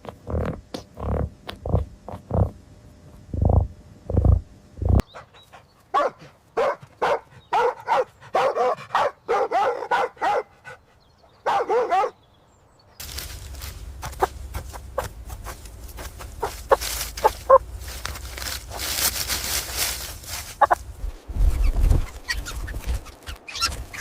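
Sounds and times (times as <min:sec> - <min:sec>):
dog barking and yipping: 0:05.2 - 0:10.6, 0:11.4 - 0:12.2, 0:16.4 - 0:17.7, 0:20.6 - 0:20.8.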